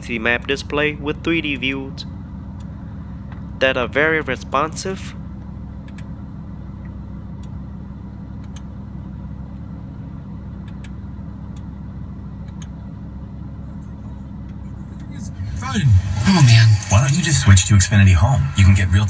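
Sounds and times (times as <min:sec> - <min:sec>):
car engine idling: 0:00.0 - 0:19.0
faint control clicks: 0:05.8 - 0:06.1, 0:08.4 - 0:08.7, 0:10.6 - 0:11.7, 0:12.4 - 0:12.8.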